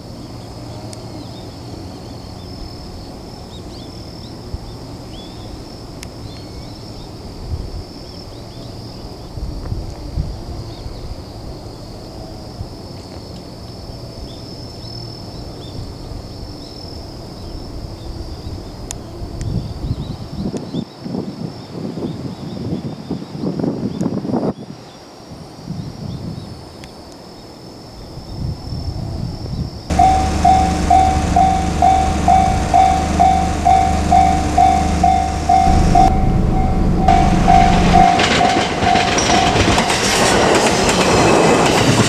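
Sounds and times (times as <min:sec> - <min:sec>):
low rumble: 0:29.9 - 0:40.3.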